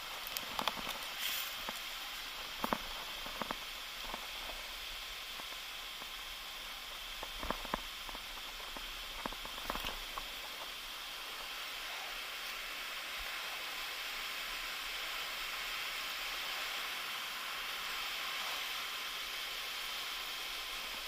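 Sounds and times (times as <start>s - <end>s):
footsteps crunching on trail: 0.0s - 6.1s, 7.2s - 11.6s
waterfall rushing: 0.0s - 21.0s.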